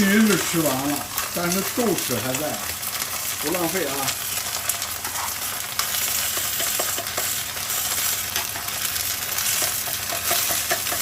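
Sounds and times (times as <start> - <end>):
prawns sizzling in hot oil: 0.0 - 11.0
utensil tapping and scraping pan: 5.0 - 7.4, 9.4 - 11.0.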